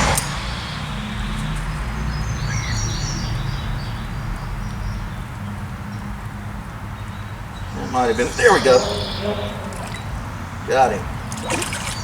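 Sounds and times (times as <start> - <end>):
steady low rumble: 0.0 - 4.4
small birds chirping: 0.0 - 12.0.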